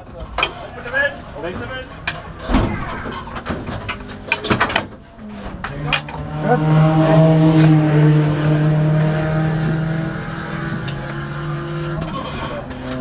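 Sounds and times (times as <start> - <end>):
gear clicks and clunks: 0.0 - 6.3.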